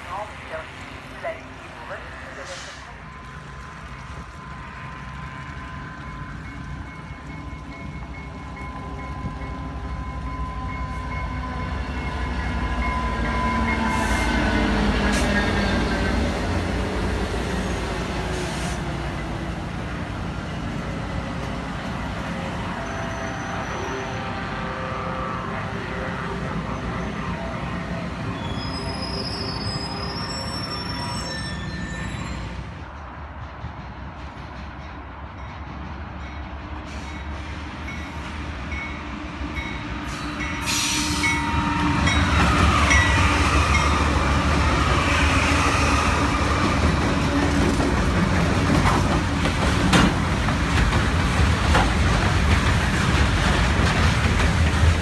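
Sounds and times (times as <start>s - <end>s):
diesel locomotive passing: 0.0s - 55.0s
train wheel squeal: 12.9s - 16.2s, 22.8s - 24.3s, 28.3s - 32.6s, 40.0s - 47.6s.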